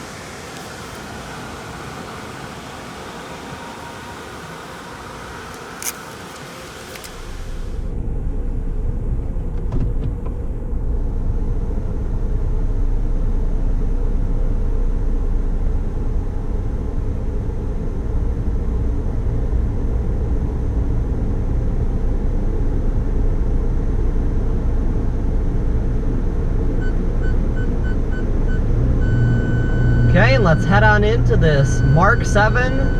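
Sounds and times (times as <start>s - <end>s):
car engine rumble: 0.0s - 32.9s
short beeps: 26.8s - 32.9s.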